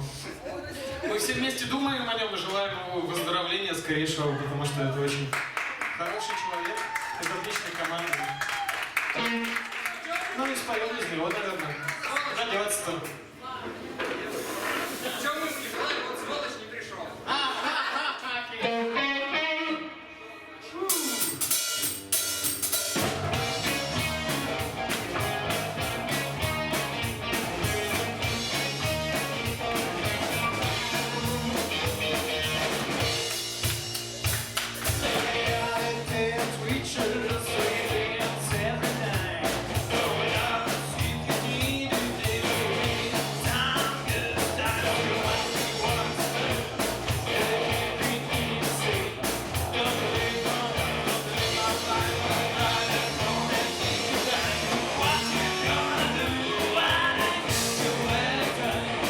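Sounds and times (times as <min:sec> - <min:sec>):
live rock band playing: 0:08.7 - 0:09.9, 0:18.6 - 0:20.2, 0:20.9 - 0:59.0.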